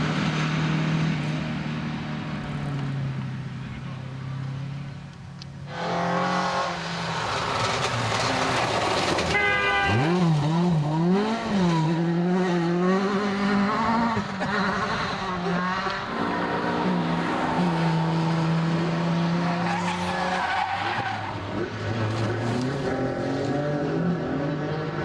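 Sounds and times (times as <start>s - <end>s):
rally car engine revving: 5.7s - 25.0s.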